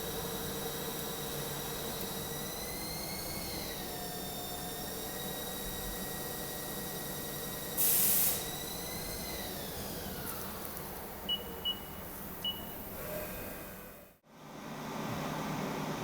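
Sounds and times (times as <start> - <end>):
short hiss of spray: 7.8 - 8.5
short beeps: 11.3 - 12.7.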